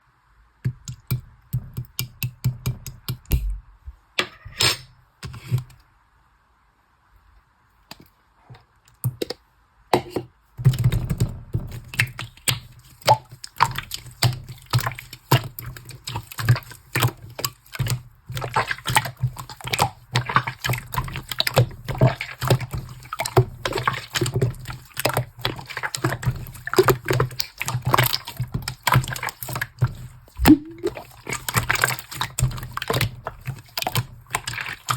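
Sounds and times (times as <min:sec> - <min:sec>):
slime squelching by hand: 0:10.7 - 0:34.9.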